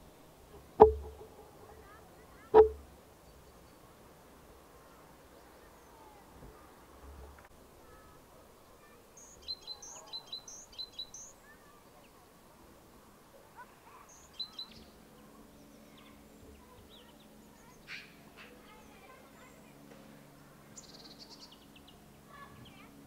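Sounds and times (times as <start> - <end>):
quiet outdoor background: 0.0 - 23.0
songbird chirping: 8.7 - 12.3, 13.9 - 23.0.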